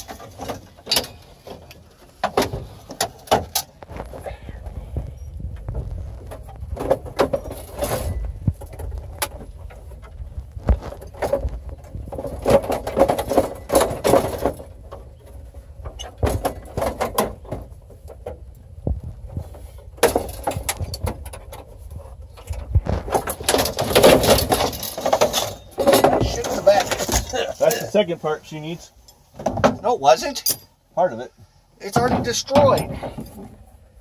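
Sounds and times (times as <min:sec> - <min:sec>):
loose parts jangling: 0:00.0 - 0:03.8, 0:06.3 - 0:10.2, 0:10.8 - 0:18.6, 0:19.4 - 0:28.0, 0:29.0 - 0:30.8
plastic and metal knocking and rattling: 0:00.0 - 0:04.2, 0:05.4 - 0:27.5, 0:29.4 - 0:29.9, 0:31.9 - 0:33.6.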